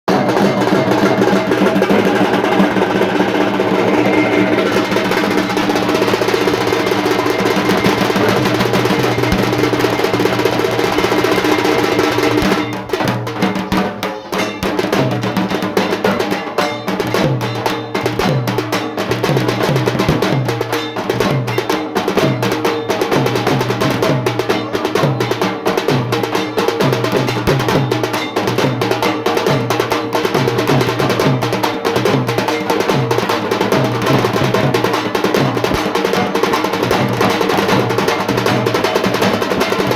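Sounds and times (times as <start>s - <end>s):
drum rolls: 0.1s - 39.9s
sharp drum strokes: 0.1s - 39.9s
sustained tones: 2.0s - 10.2s.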